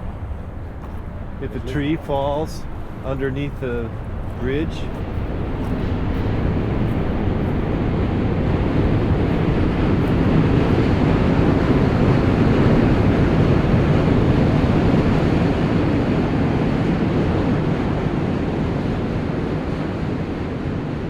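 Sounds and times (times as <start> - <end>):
train rumbling over bridge: 0.0 - 16.8.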